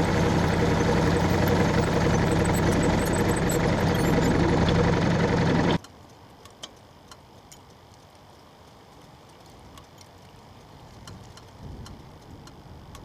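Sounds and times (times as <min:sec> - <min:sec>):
faint ticks and clicks: 0:05.8 - 0:13.0.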